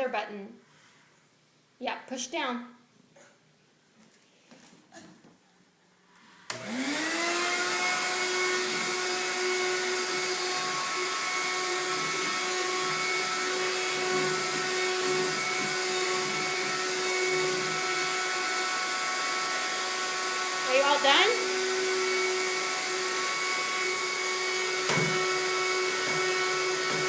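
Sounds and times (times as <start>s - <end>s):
vacuum cleaner motor whine: 6.5s - 27.0s.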